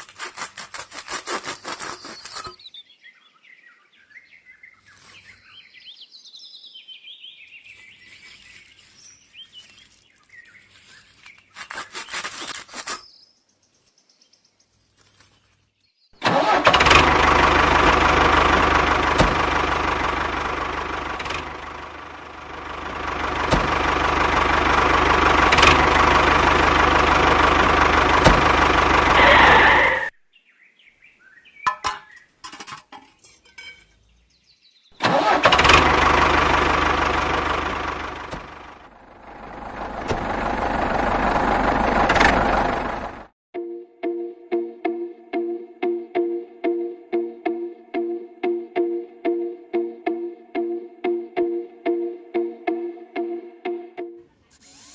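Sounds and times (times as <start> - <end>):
small motor running: 16.6 - 30.1, 54.5 - 54.9.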